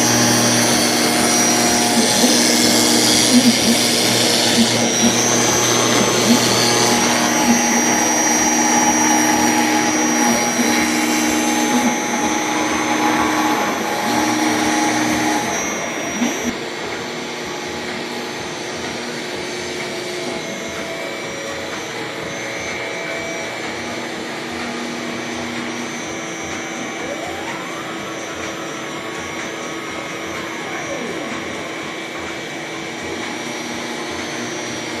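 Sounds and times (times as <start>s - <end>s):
axis motors humming: 0.0s - 35.0s
router spindle whining: 0.0s - 35.0s.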